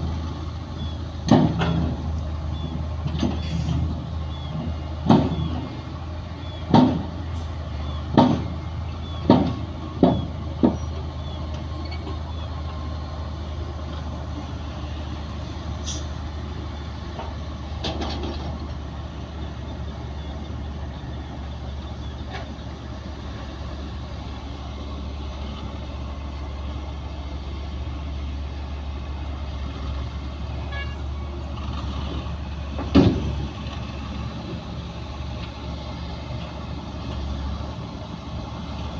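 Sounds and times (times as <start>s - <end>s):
bulldozer diesel engine running: 0.0s - 38.9s
sharp loud knocks: 5.0s - 5.5s, 6.7s - 7.2s, 8.1s - 8.6s, 9.2s - 10.9s.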